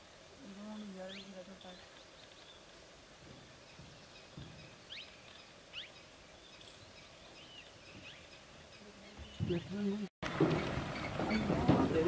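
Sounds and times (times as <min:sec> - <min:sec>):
faint bird chirps and twitters: 0:00.7 - 0:02.7, 0:03.3 - 0:09.9.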